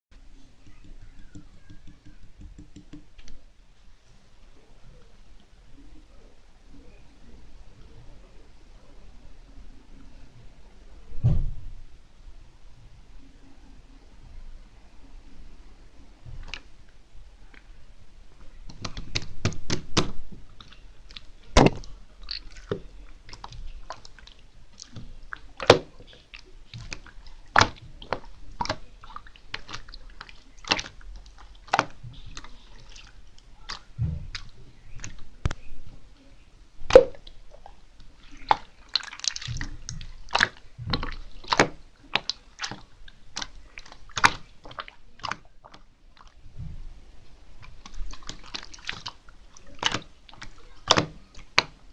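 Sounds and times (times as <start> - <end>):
sharp pops and clicks: 0.6 - 3.4
slime being squished by hand: 18.6 - 35.7, 38.3 - 46.4, 47.6 - 51.9.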